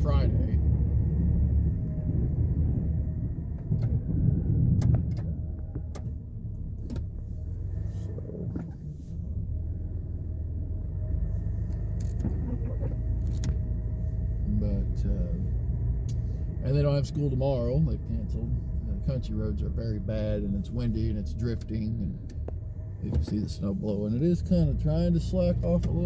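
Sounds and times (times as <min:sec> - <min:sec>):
truck engine rumbling: 0:00.0 - 0:26.0
sharp clicks and knocks: 0:03.5 - 0:06.2.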